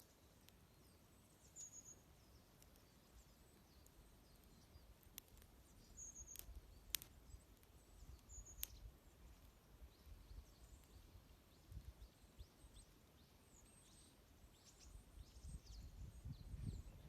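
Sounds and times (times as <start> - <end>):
wood fire crackling and popping: 0.0 - 0.8, 1.5 - 11.2
small birds chirping: 0.0 - 17.0.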